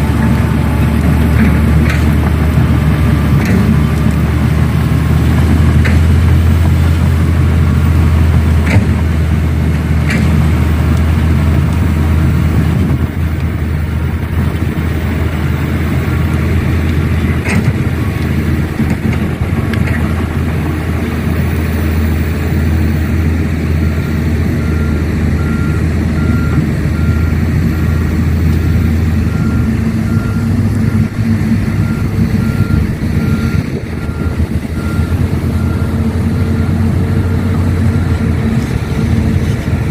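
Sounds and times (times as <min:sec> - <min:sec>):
heavy equipment engine droning: 0:00.0 - 0:39.9
reversing alarm beeping: 0:23.7 - 0:39.3.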